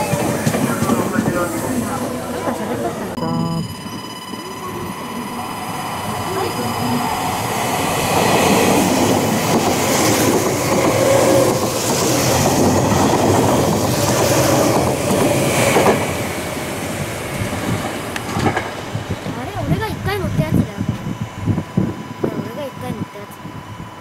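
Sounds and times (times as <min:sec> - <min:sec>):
electric train passing: 0:00.0 - 0:24.0
wheels clacking over rails: 0:06.1 - 0:21.1.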